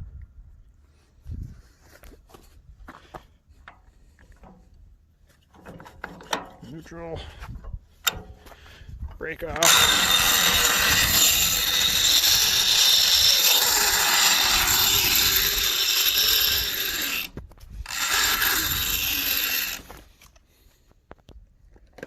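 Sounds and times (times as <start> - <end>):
winch drum ratcheting clatter: 9.6 - 19.9.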